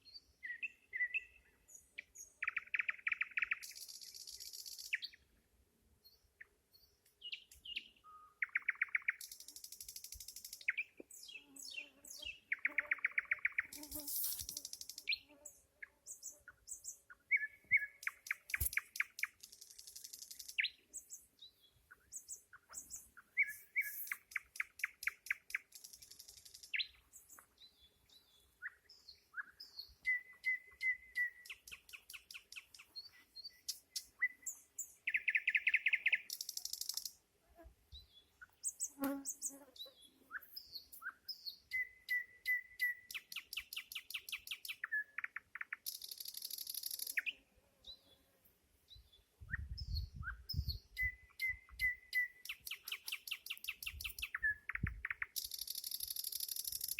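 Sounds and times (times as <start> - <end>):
nightingale singing: 0.0 - 5.2, 6.0 - 15.3, 16.1 - 37.2, 37.9 - 47.4, 48.9 - 56.9.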